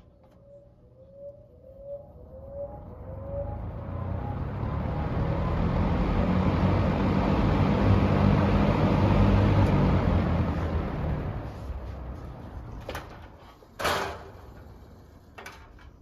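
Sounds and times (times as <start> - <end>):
short rising whine-like chirps: 0.0 - 5.6.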